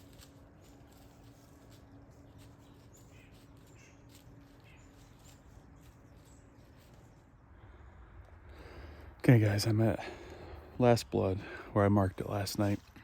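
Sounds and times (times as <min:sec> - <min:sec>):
faint steady hum: 0:00.0 - 0:13.0
faint bird calls: 0:02.4 - 0:09.0.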